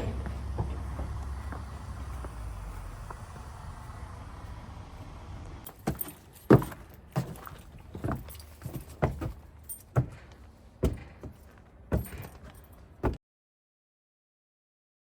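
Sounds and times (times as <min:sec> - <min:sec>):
low steady rumble: 0:00.0 - 0:05.7.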